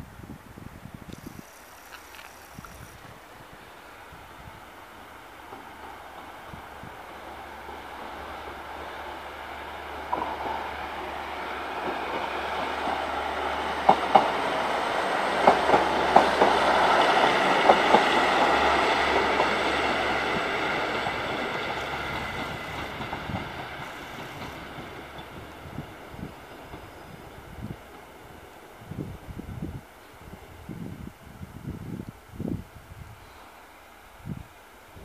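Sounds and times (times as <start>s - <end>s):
diesel train passing: 1.4s - 31.1s
wheels clacking over track joints: 13.8s - 14.7s, 15.3s - 28.2s.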